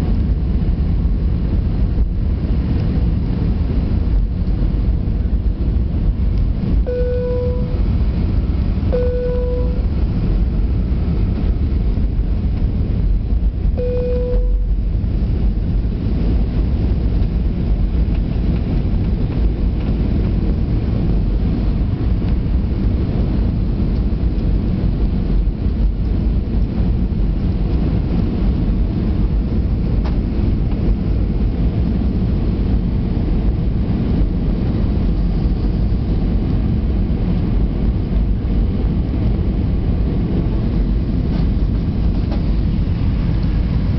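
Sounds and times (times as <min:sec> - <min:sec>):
airplane cabin engine rumble: 0:00.0 - 0:43.9
short steady tones: 0:06.9 - 0:08.0, 0:08.9 - 0:10.0, 0:13.8 - 0:14.8.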